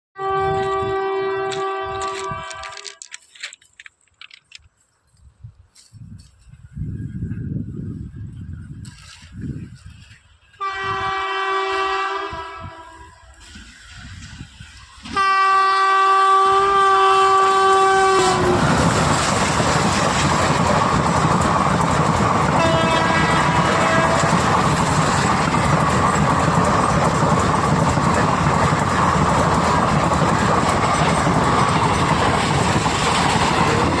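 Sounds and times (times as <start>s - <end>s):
train rumbling past on rails: 0.2s - 2.9s, 6.6s - 34.0s
train horn: 0.2s - 3.0s, 10.5s - 13.4s, 15.0s - 18.9s, 22.5s - 24.6s.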